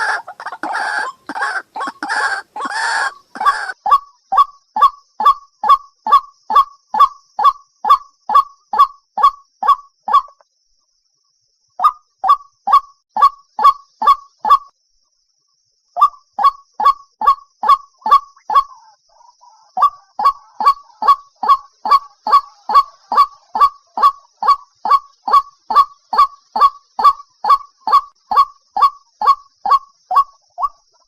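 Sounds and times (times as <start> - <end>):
waterhen calling: 0.0 - 3.8, 16.8 - 30.8.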